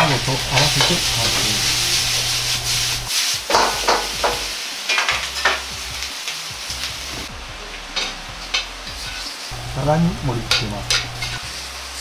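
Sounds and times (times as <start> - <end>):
food sizzling in a wok: 0.0 - 12.0
stirring strokes in a wok: 0.0 - 12.0.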